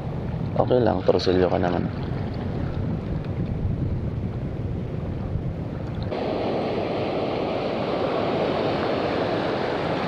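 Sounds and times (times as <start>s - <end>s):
wind buffeting microphone: 0.0s - 10.0s
waves washing on shore: 4.8s - 10.0s.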